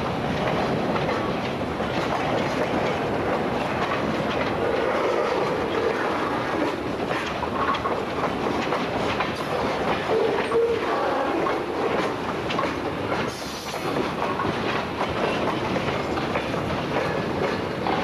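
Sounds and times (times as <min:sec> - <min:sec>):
train wheels clicking over rail joints: 0:00.0 - 0:18.0.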